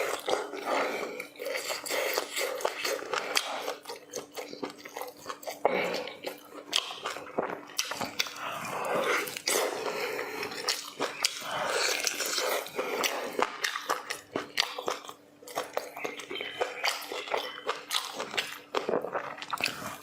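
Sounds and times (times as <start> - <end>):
chewing and biting food: 0.0 - 20.0.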